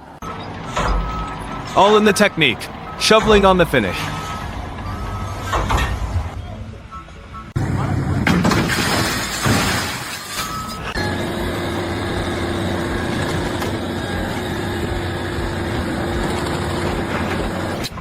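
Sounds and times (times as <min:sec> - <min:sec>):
machine humming: 0:11.0 - 0:17.8.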